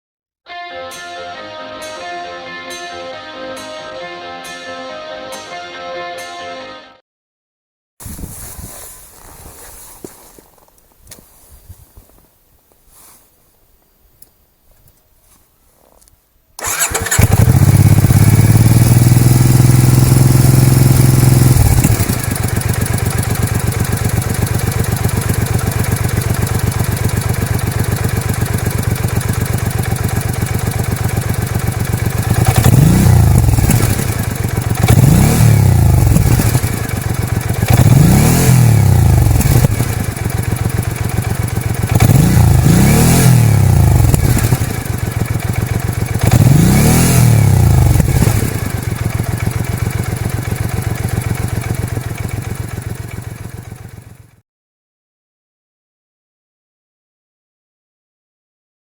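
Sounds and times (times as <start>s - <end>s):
motorcycle engine idling and revving: 16.6s - 54.4s.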